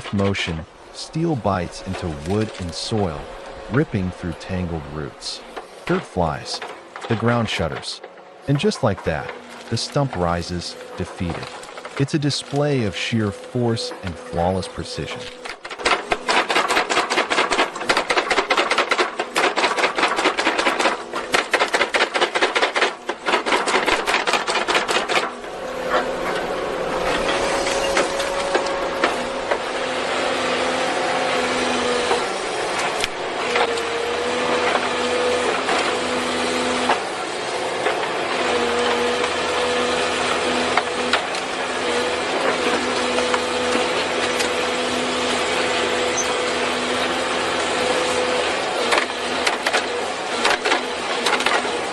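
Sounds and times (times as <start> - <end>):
machine drone with whine: 0.0 - 51.9
machine striking wood: 15.2 - 26.4.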